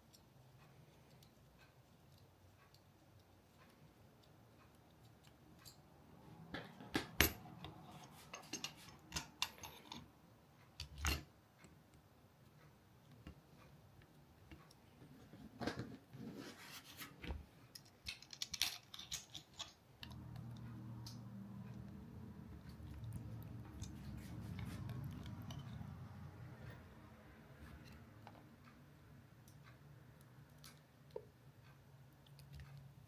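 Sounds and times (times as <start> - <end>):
clicks and clatter of parts handled: 6.4 - 10.1, 17.2 - 20.2.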